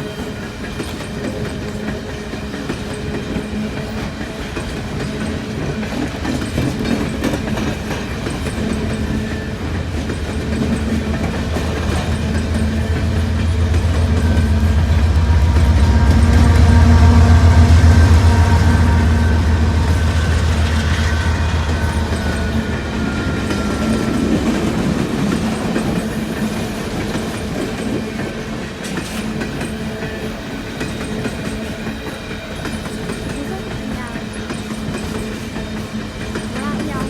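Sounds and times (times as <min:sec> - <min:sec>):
train wheels clattering over rail: 0:00.0 - 0:37.0
diesel locomotive rumble: 0:00.9 - 0:37.0.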